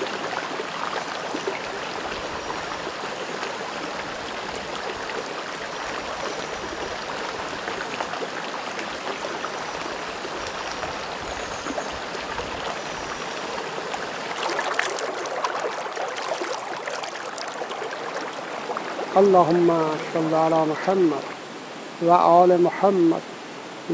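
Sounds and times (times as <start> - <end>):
stream running over rocks: 0.0 - 23.9
water splashing from hand: 14.1 - 21.4.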